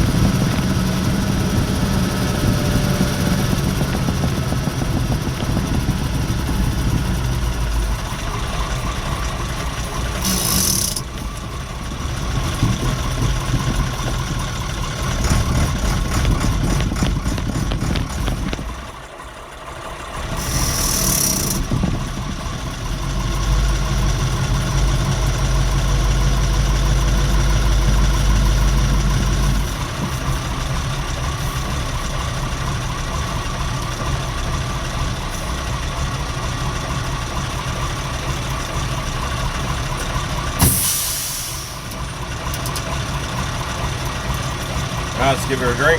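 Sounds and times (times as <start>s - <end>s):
diesel truck engine running: 0.0s - 45.9s
air brake hiss: 40.6s - 42.0s.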